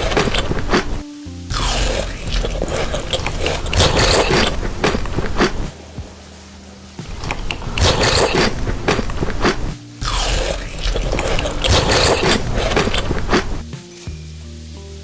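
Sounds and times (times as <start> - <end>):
crunching while eating: 0.0 - 5.9, 7.1 - 13.6.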